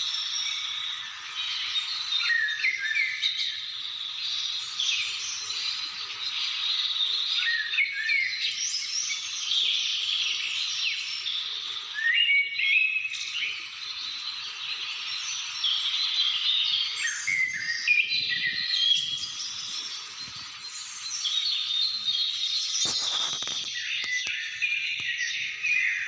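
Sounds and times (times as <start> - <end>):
birds calling and singing: 0.0 - 26.0
bird whistled phrases: 11.9 - 13.6, 16.0 - 26.0.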